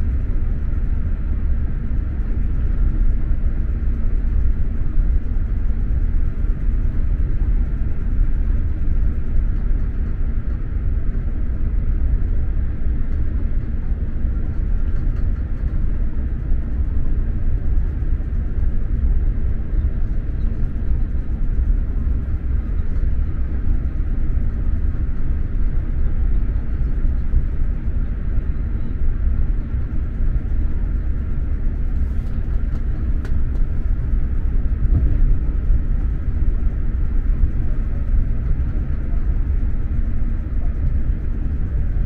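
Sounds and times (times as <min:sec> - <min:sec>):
train wheels rumbling on track: 0:29.7 - 0:42.0.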